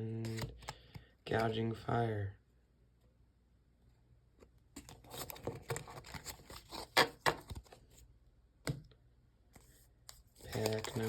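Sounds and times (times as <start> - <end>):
cards and packaging rustling: 0.2 - 1.1, 4.8 - 8.1, 9.6 - 11.0.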